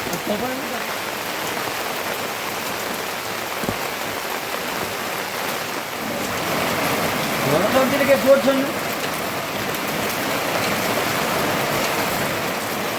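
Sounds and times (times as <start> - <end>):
steady rain falling: 0.0 - 12.9.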